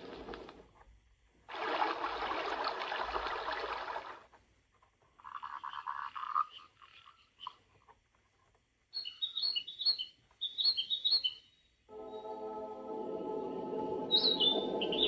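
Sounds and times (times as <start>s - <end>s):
ambient music tone: 11.9s - 15.0s.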